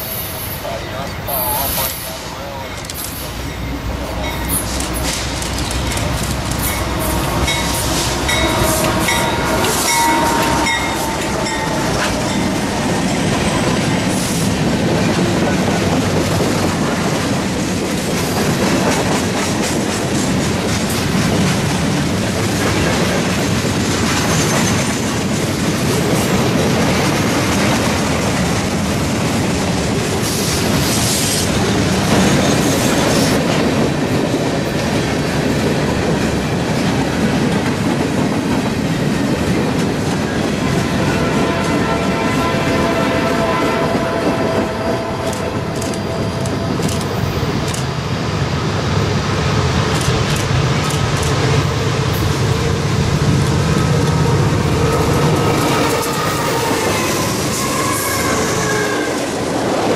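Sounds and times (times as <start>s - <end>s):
diesel locomotive passing: 0.0s - 59.9s
train wheels clicking over rail joints: 2.8s - 34.0s, 45.2s - 48.0s, 49.6s - 58.8s.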